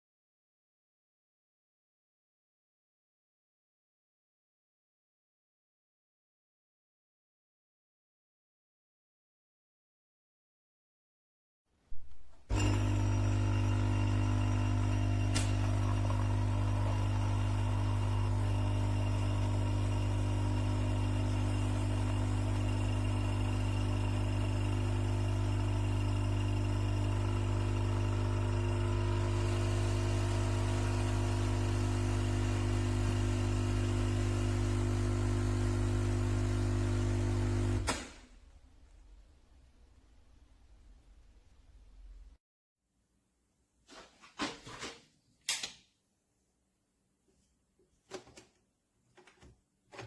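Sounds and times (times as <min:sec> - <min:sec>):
coffee machine pump buzzing: 0:12.3 - 0:38.2.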